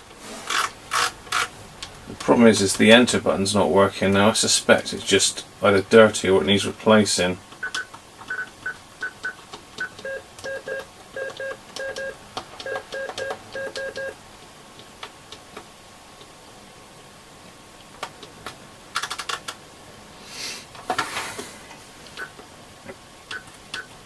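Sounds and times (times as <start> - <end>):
electronic keypad beeps: 7.6 - 14.2.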